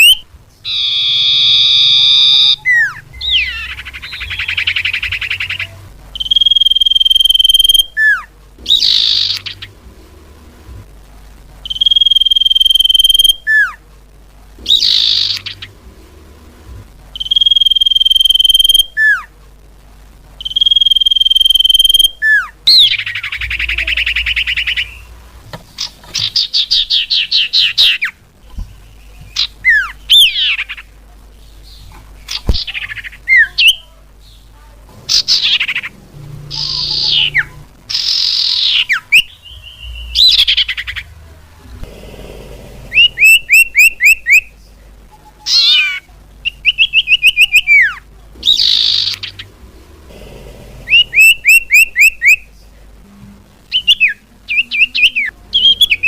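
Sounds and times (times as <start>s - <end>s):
bird whistling and singing: 0.0s - 9.6s, 14.7s - 15.7s, 17.2s - 19.2s, 20.4s - 25.1s, 36.5s - 41.0s, 53.7s - 56.0s
buzzy rattling bird trill: 0.0s - 9.8s, 14.6s - 15.8s, 35.0s - 41.1s, 45.5s - 49.6s.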